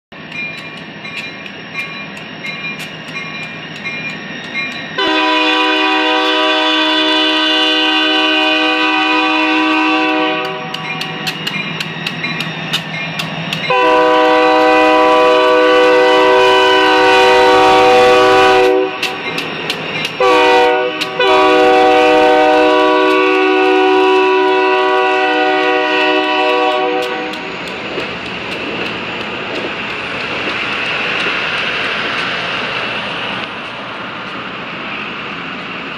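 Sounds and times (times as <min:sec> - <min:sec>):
train rumbling by: 0:00.1 - 0:35.9
locomotive chime horn blasts: 0:05.0 - 0:11.2, 0:13.7 - 0:19.2, 0:20.2 - 0:27.5
wheels clicking over rail joints: 0:10.0 - 0:16.0, 0:18.9 - 0:20.3, 0:21.0 - 0:34.4.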